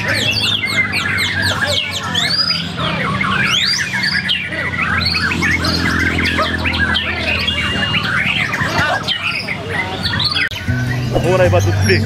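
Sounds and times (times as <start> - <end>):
birds singing fast whistles and trills: 0.0 - 12.0
steady low hum: 4.7 - 8.7.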